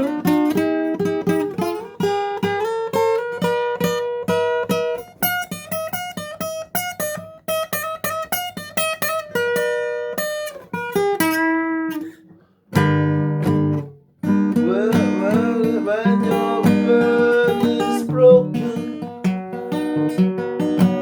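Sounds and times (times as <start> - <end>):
guitar picking single notes: 11.4 - 21.0
person singing: 14.5 - 19.3.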